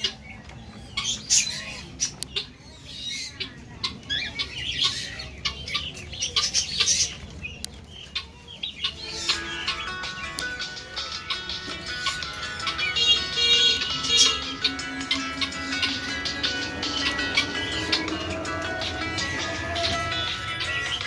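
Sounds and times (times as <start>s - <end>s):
caged birds chirping and squawking: 0.0s - 21.0s
music: 8.7s - 21.0s.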